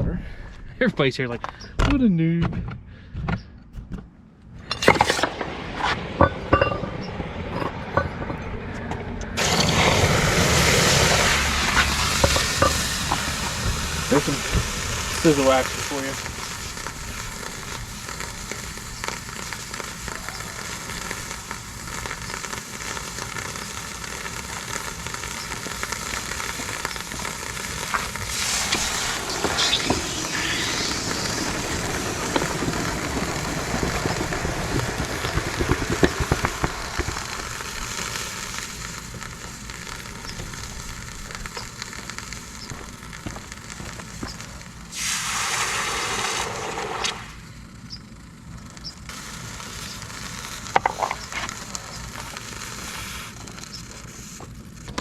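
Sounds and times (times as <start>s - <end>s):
short loud hiss: 9.4s - 40.8s, 43.5s - 47.4s
hot metal sizzling in water: 9.4s - 47.6s, 48.5s - 55.0s.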